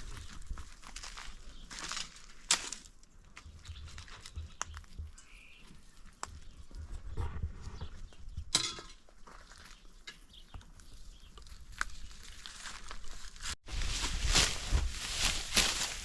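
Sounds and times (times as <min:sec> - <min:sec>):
dry wheat stalks crackling: 0:00.0 - 0:07.0, 0:09.3 - 0:16.0
sickle cutting stalks: 0:00.9 - 0:02.9, 0:11.4 - 0:16.0.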